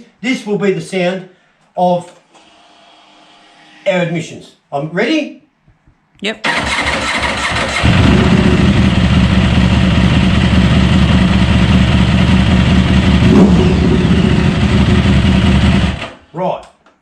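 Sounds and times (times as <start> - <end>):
engine running and revving: 7.6 - 16.0.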